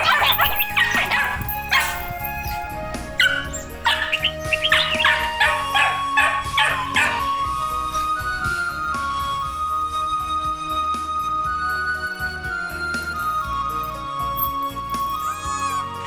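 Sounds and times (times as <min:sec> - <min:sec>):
dog barking: 0:00.0 - 0:02.4, 0:03.1 - 0:07.4
background music: 0:00.0 - 0:16.0.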